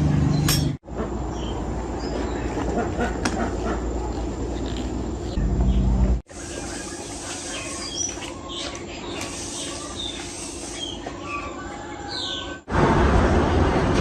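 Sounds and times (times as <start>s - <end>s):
noisy machine: 0.0s - 14.0s
small birds chirping: 4.6s - 12.6s.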